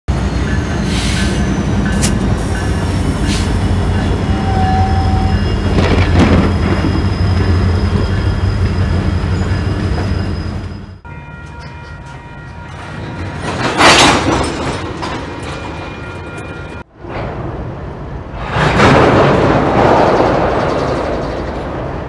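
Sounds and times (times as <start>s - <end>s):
diesel locomotive engine rumble: 0.1s - 22.0s
high wheel squeal: 0.3s - 13.4s.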